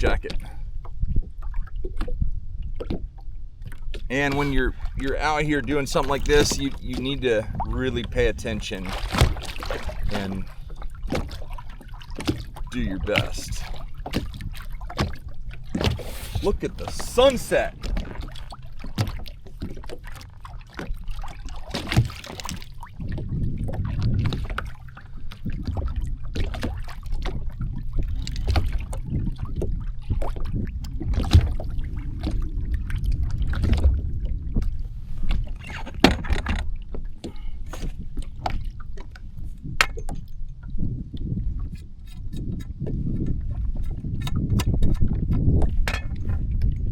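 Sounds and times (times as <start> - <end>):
water lapping against hull: 0.0 - 46.9
low rumble: 28.8 - 36.9.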